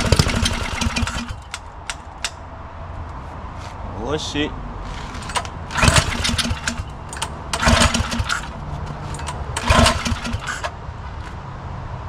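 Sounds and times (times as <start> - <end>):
recoil starter pulls: 0.0 - 2.4, 4.8 - 11.4.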